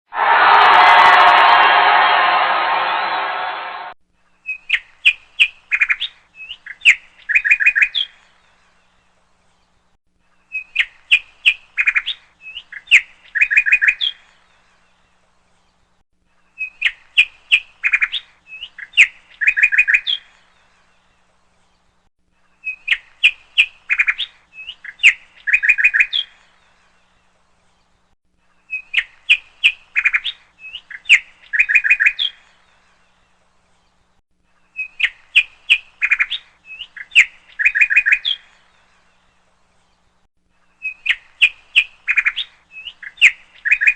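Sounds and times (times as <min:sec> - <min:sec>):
bird chirping and trilling: 0:34.8 - 0:38.6, 0:40.8 - 0:43.9.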